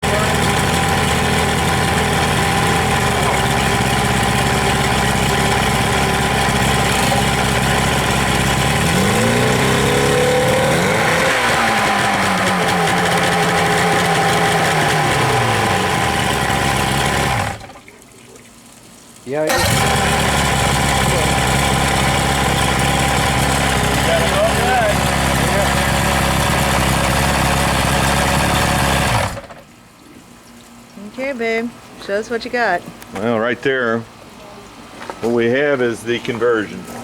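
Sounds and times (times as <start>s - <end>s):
outboard motor idling and revving: 0.0s - 17.9s, 19.5s - 29.7s.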